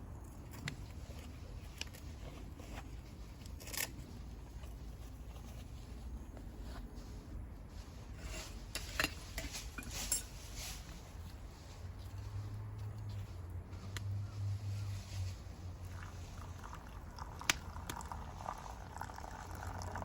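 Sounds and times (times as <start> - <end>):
coffee gear clicking and clinking: 3.4 - 4.8.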